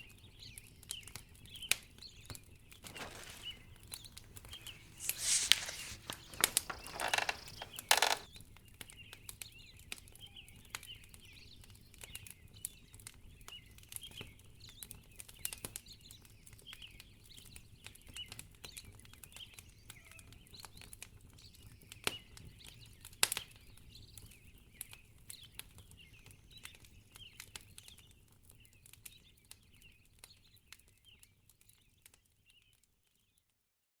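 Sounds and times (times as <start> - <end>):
fire flaring with rustling: 2.8 - 8.3
wood fire crackling: 2.8 - 8.3.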